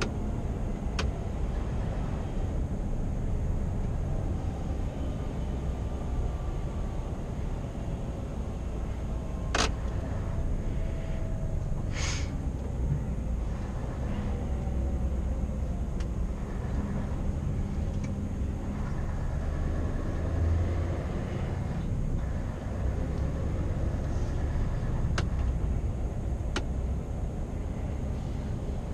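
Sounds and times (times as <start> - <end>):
road noise: 0.0 - 28.9
truck engine running: 0.0 - 28.9
brief hiss: 11.9 - 12.3.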